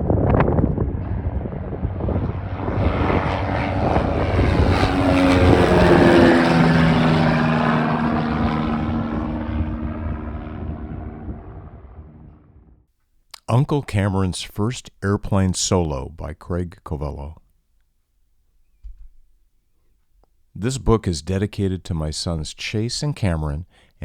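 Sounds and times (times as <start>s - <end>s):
propeller airplane flying past: 0.0s - 12.8s.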